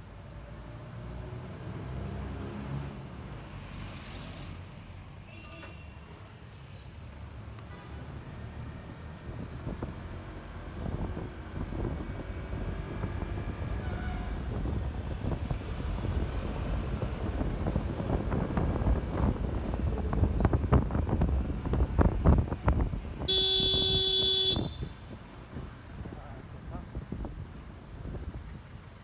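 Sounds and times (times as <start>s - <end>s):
scooter road rumble: 8.9s - 29.0s
wind buffeting: 10.8s - 23.3s
vehicle horn toot: 23.3s - 25.0s.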